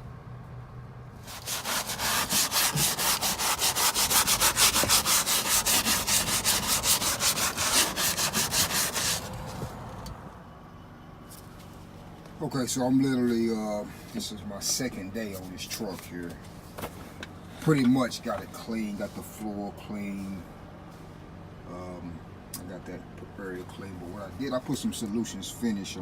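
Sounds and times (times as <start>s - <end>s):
scrub brush scrubbing floor: 1.2s - 9.4s.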